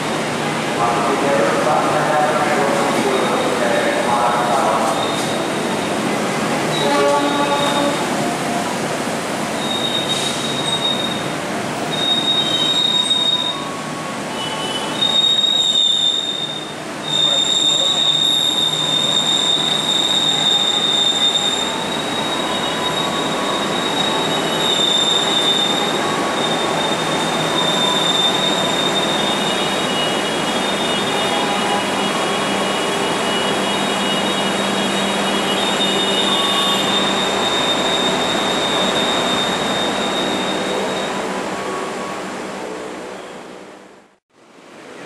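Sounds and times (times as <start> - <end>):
high thin wheel squeal: 9.6 - 42.1.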